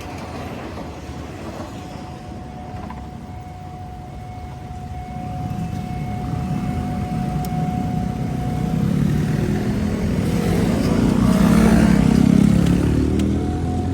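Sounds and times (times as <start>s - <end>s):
motorcycle engines approaching: 5.3s - 13.9s.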